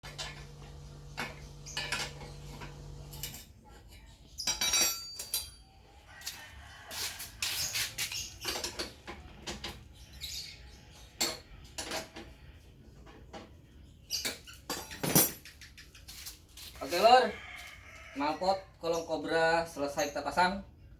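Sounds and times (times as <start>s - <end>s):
metallic tool clinks and knocks: 4.4s - 5.7s, 14.3s - 15.6s.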